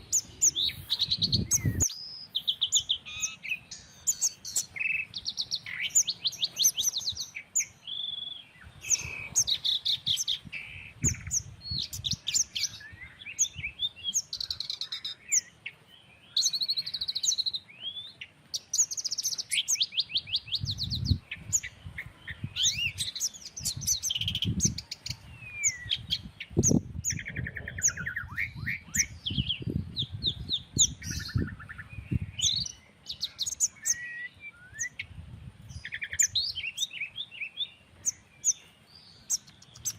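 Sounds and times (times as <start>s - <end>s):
wind rumbling on microphone: 0.0s - 7.4s, 8.5s - 15.1s, 20.1s - 34.0s, 34.7s - 36.9s
birds chirping and trilling: 0.0s - 39.9s.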